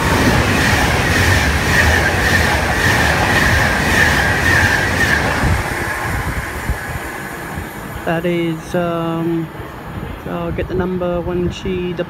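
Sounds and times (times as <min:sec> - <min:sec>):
wheels beating over rail joints: 0:00.0 - 0:08.8
electric train passing at speed: 0:00.0 - 0:12.0.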